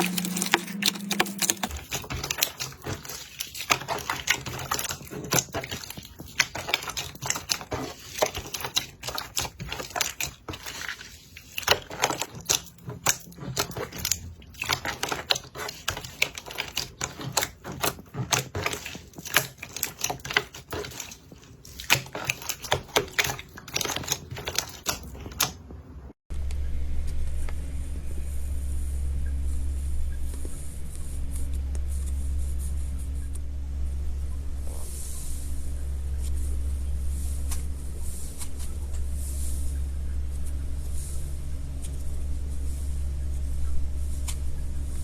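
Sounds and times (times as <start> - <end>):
slime clicking and crackling: 0.0 - 25.6.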